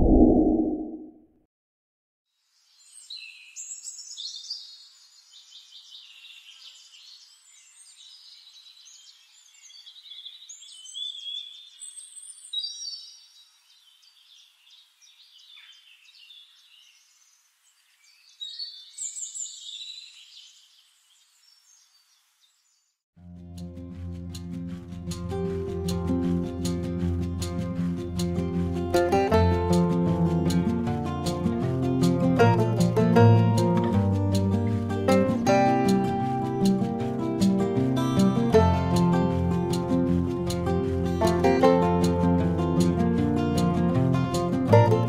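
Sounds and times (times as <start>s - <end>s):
birds singing in chorus: 2.6s - 23.0s.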